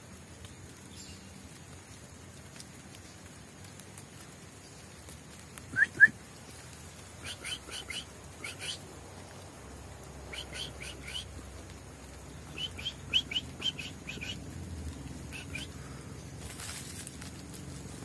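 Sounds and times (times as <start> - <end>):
songbird chirping: 0.3 - 18.0.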